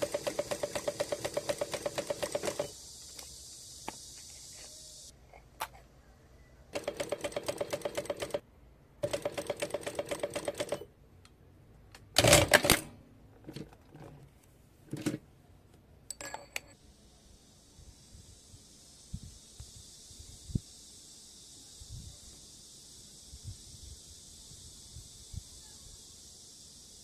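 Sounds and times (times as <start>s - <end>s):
sewing machine stitching: 0.0s - 2.7s, 6.8s - 8.4s, 9.0s - 10.9s, 12.2s - 12.9s.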